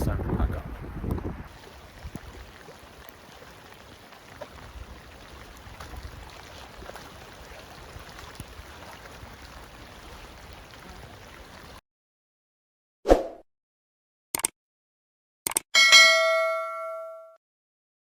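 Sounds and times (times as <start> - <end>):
steady rain falling: 1.5 - 11.8.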